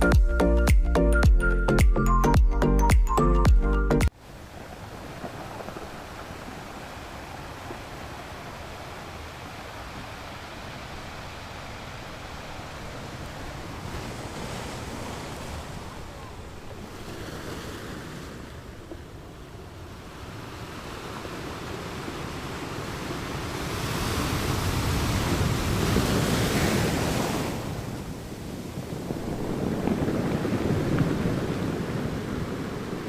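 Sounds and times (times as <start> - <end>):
wind and road noise from car: 18.7 - 33.0.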